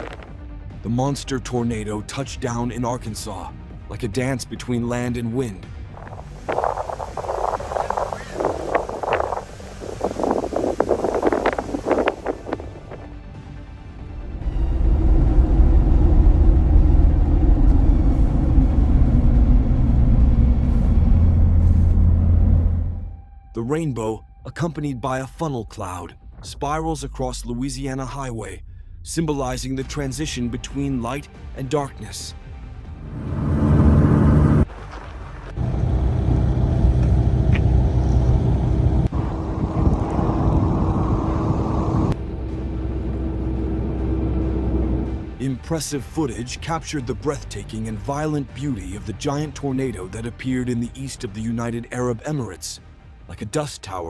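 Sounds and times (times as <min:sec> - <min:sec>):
loud low rumble: 0:05.8 - 0:13.2, 0:13.8 - 0:23.5, 0:26.0 - 0:31.1, 0:32.7 - 0:34.8, 0:35.4 - 0:47.2
car road and engine noise: 0:05.8 - 0:23.2, 0:32.6 - 0:45.5.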